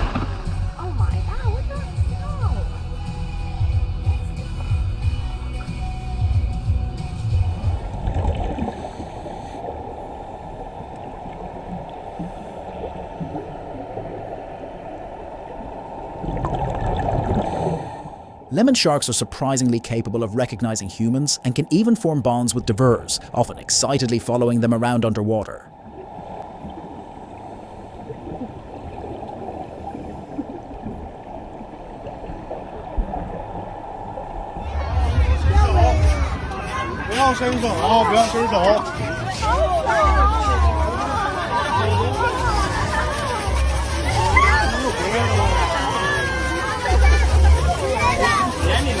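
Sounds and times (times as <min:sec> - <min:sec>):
muffled water rushing and gurgling: 0:00.0 - 0:49.0
underwater gurgling and bubbling: 0:07.5 - 0:18.5, 0:25.7 - 0:37.0.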